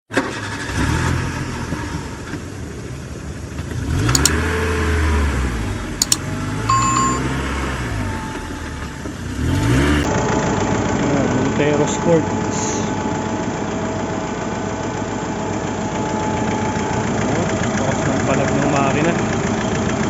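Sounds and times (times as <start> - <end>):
diesel engine revving: 3.6 - 11.4
sharp clicks: 4.2 - 4.4, 6.0 - 7.2
short beep: 6.0 - 7.3.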